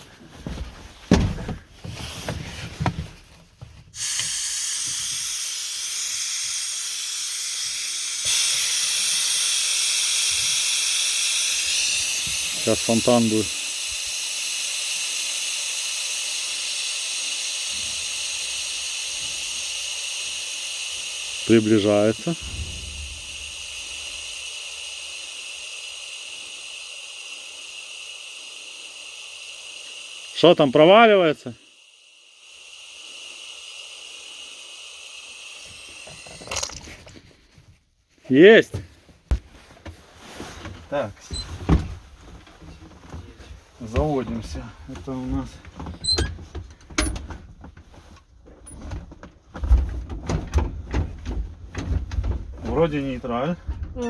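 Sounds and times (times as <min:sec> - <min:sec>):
air hissing out: 0:03.9 - 0:37.2, 0:41.2 - 0:42.4.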